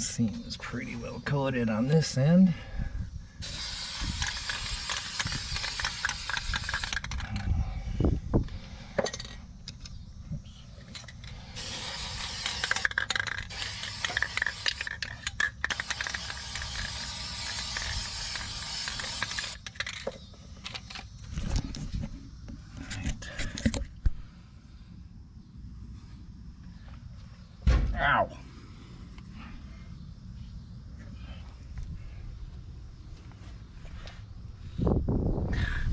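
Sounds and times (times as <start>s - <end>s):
paint spraying hiss: 3.4s - 7.0s, 11.4s - 15.1s, 15.7s - 19.6s.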